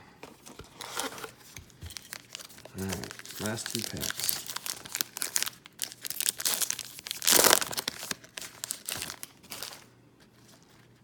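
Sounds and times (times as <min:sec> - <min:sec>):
card pack wrapper crinkling: 0:00.8 - 0:09.9
wrapper being torn open: 0:02.0 - 0:09.9.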